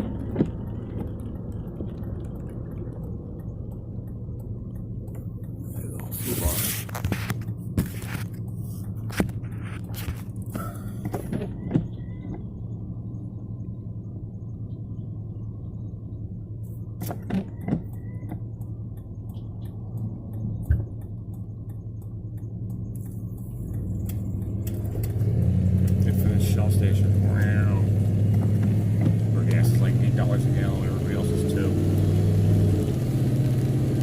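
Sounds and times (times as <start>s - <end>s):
sharp clicks and thunks: 0.0s - 6.0s, 6.8s - 12.5s, 17.0s - 26.1s, 27.9s - 29.6s
vehicle engine idling: 0.0s - 32.8s.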